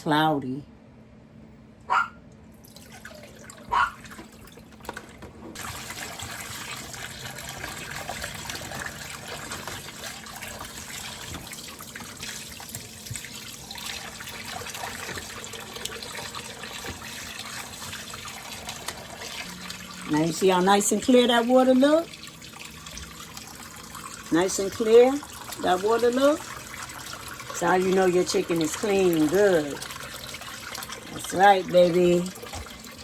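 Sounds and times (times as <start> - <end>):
tap running into a sink: 3.6 - 19.9, 22.2 - 24.1, 32.3 - 33.0.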